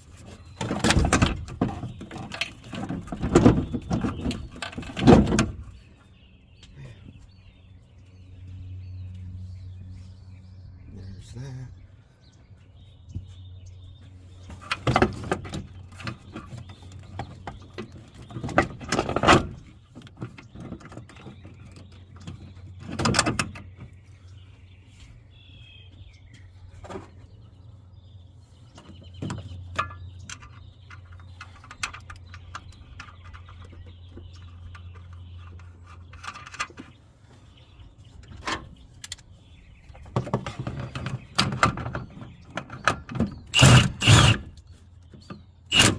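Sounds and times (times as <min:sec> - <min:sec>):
birds chirping: 0:00.0 - 0:45.9
tools clanking and knocking: 0:00.5 - 0:05.7, 0:28.8 - 0:37.0, 0:39.9 - 0:45.9.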